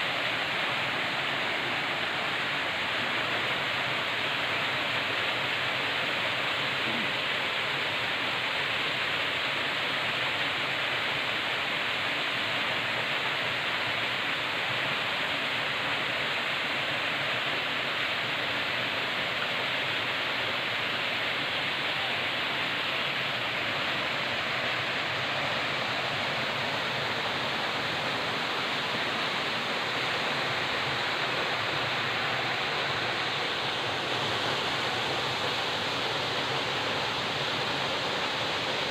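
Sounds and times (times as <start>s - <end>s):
river water rushing over rocks: 0.0s - 38.9s.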